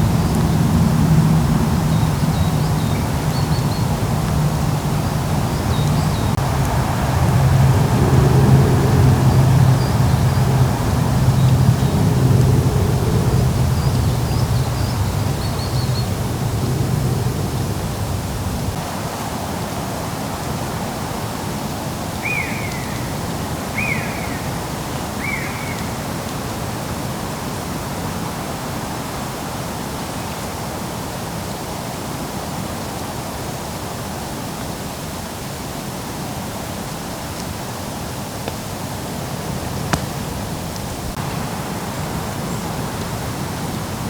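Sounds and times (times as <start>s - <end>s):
steady rushing background noise: 0.0s - 27.6s.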